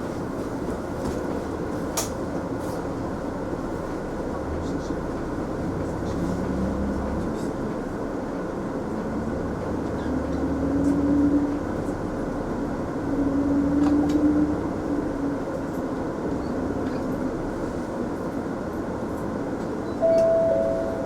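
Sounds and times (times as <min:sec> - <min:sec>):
bus diesel engine droning: 0:01.7 - 0:13.7, 0:18.9 - 0:21.0.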